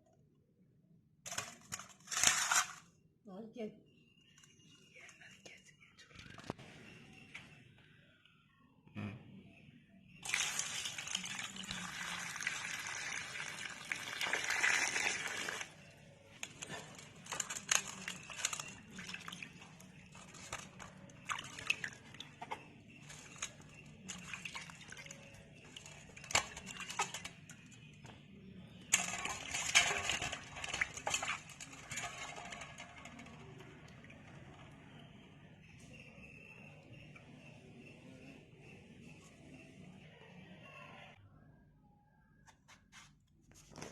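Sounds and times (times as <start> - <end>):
crisp clicks and crackles: 16.4 - 27.6.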